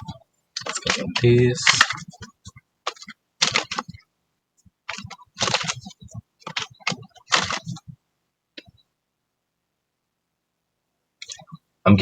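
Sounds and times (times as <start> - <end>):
cards shuffling: 0.0 - 4.0, 4.9 - 7.9.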